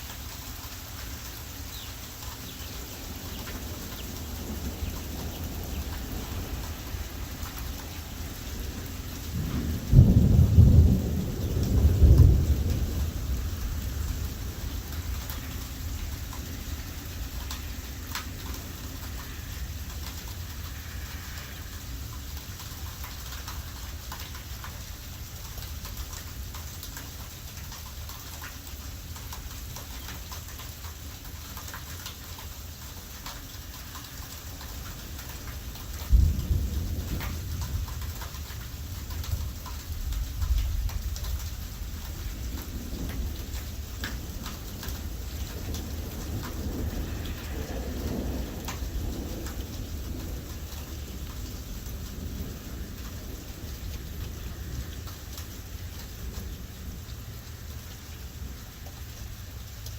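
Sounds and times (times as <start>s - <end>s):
heavy rain falling: 0.0s - 59.9s
raindrops ticking: 0.0s - 59.9s
wind buffeting microphone: 1.7s - 22.6s, 36.1s - 57.0s.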